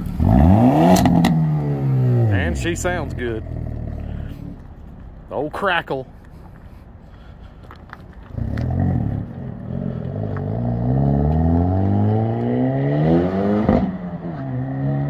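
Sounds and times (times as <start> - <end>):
car engine accelerating hard: 0.0 - 4.6, 8.3 - 15.0.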